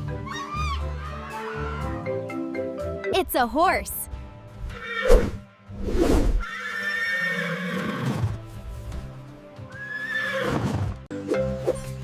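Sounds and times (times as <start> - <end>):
background music: 0.0 - 12.0
horse whinnying: 4.7 - 5.3, 6.4 - 8.3, 9.7 - 11.0.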